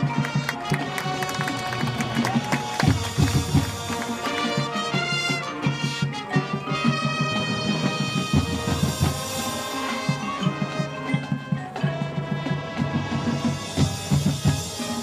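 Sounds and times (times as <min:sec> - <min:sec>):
fast drum pattern: 0:00.0 - 0:05.9, 0:08.0 - 0:15.0
sustained brass chords: 0:03.0 - 0:15.0.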